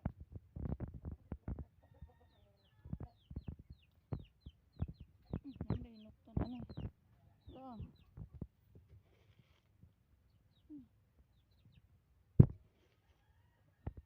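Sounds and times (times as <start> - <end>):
chicks peeping: 0.8 - 13.2
hen clucking: 1.5 - 8.4.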